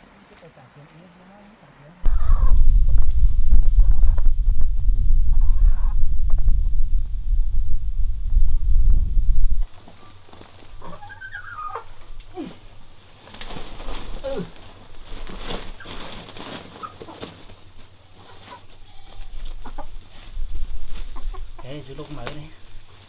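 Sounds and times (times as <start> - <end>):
chickens calling: 0.0 - 2.5, 9.6 - 23.0
knocks and rustling: 9.6 - 23.0.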